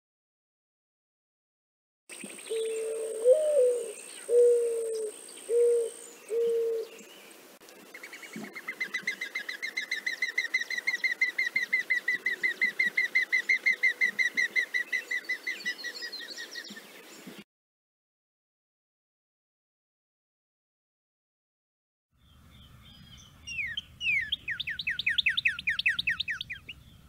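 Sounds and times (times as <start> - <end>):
dove cooing: 2.4 - 7.0
dove wing whistle: 23.4 - 27.0.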